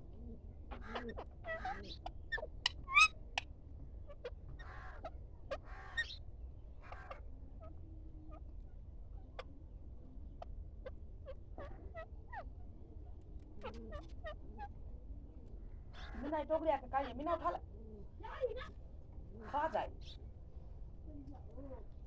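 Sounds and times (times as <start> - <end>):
raspy bird calls: 0.7 - 3.2, 4.6 - 6.2
birds chirping and whistling: 2.3 - 3.1.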